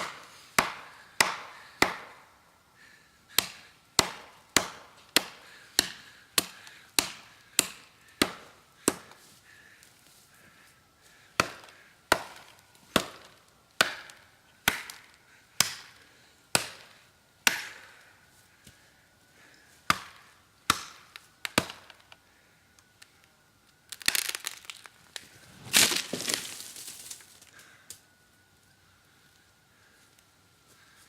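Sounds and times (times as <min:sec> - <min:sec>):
tree cracking and splintering: 0:23.9 - 0:27.7
blade chopping into tree trunk: 0:25.7 - 0:27.2.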